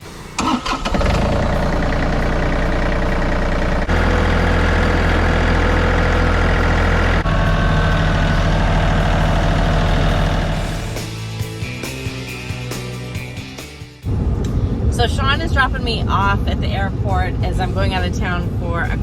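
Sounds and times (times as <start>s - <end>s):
tractor engine running: 0.0s - 12.3s.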